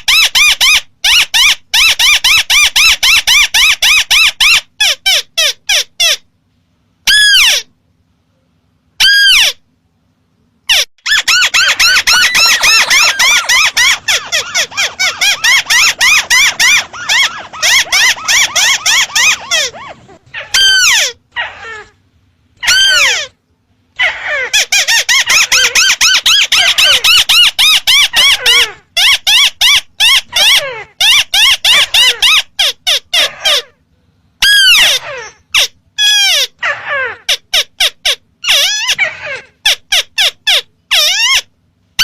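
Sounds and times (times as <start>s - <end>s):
bird fast trill: 10.7s - 21.2s
bird sharp slurred notes: 11.1s - 21.0s.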